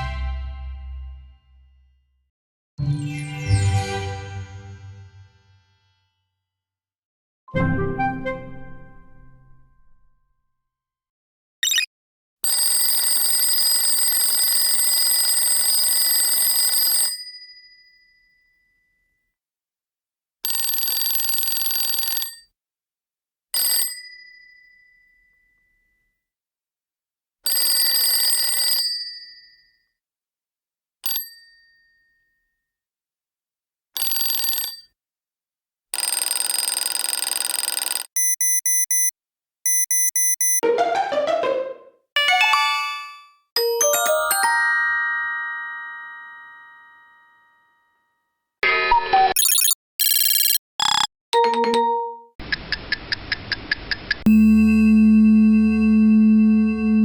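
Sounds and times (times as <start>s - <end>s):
short electronic beeps: 11.6s - 11.9s, 38.2s - 39.1s, 39.7s - 40.6s, 49.3s - 51.1s
bell ringing: 42.2s - 47.2s.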